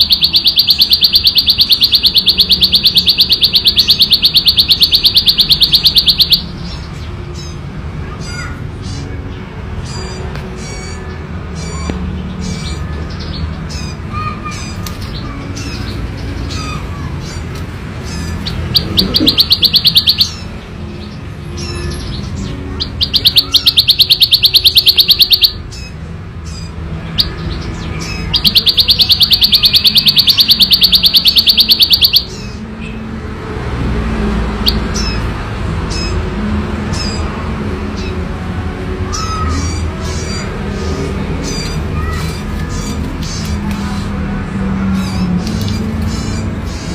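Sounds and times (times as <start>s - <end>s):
bird chirps: 0.0s - 7.6s, 9.8s - 33.0s
prinia buzzing trill: 18.1s - 20.5s.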